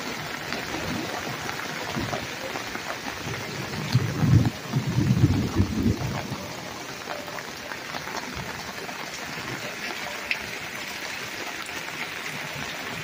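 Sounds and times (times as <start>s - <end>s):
rain falling through trees: 0.0s - 13.0s
water drips ticking: 0.0s - 13.0s.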